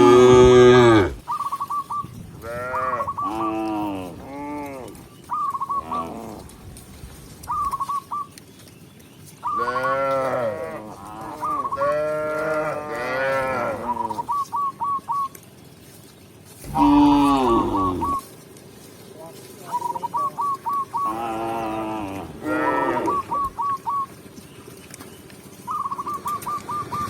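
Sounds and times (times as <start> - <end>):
cows mooing: 0.0 - 1.2, 2.4 - 5.0, 5.8 - 6.6, 9.6 - 14.2, 16.6 - 18.2, 21.0 - 23.6.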